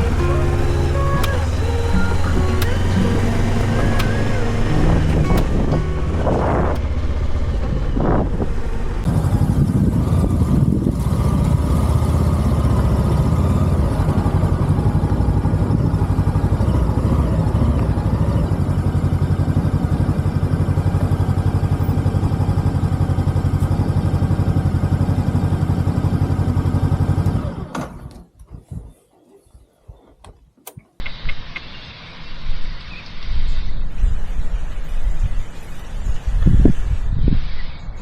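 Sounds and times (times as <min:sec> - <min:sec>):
faint engine ticks: 0:00.0 - 0:09.1
motorcycle engine idling: 0:00.0 - 0:27.6.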